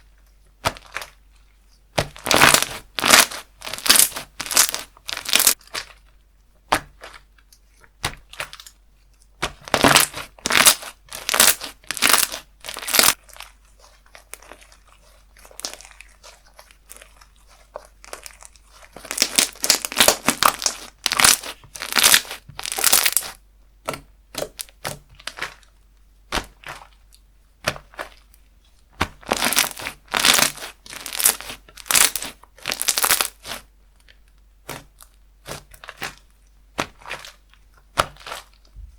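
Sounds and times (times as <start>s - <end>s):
slime squeezed crackling: 2.0s - 6.1s, 9.4s - 23.4s, 29.0s - 38.7s.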